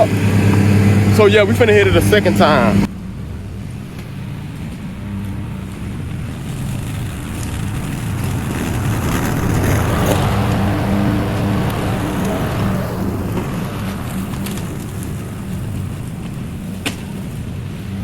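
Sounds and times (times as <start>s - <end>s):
lawn mower engine cutting grass: 0.0s - 18.0s.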